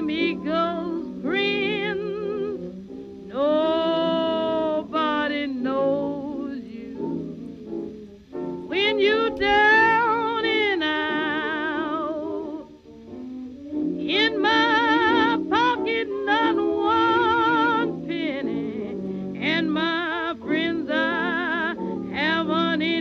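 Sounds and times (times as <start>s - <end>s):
person singing long held notes: 0.0s - 7.2s, 8.7s - 23.0s
guitar: 0.0s - 23.0s.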